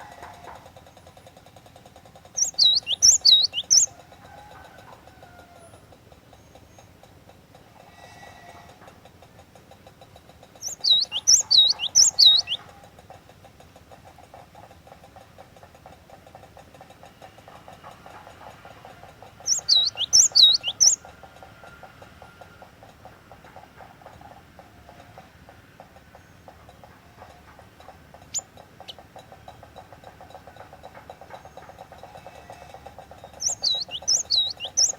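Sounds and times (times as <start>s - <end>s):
bird singing high whistled notes: 2.4s - 3.9s, 10.6s - 12.6s, 19.5s - 21.0s, 33.4s - 34.9s.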